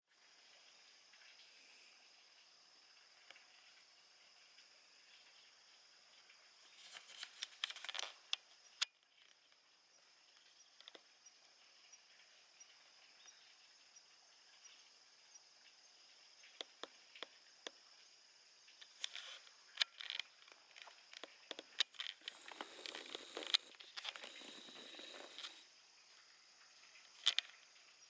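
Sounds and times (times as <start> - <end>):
faint high whine: 0.2 - 28.0
small sharp clicks and taps: 10.3 - 11.1, 16.4 - 17.8, 18.7 - 25.6, 27.0 - 27.6.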